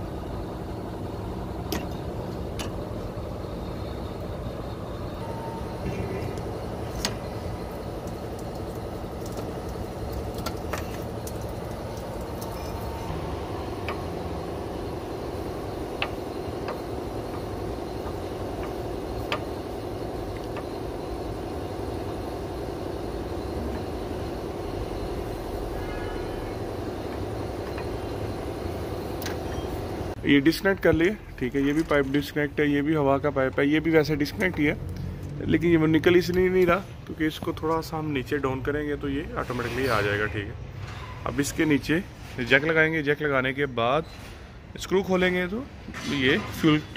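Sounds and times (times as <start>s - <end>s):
mechanical drone: 0.0s - 31.9s.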